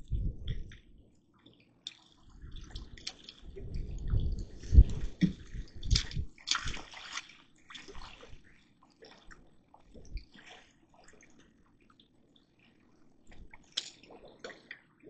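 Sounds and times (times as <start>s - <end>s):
water dripping: 0.0s - 8.1s, 13.2s - 15.0s
water splashing and sloshing: 0.0s - 15.0s.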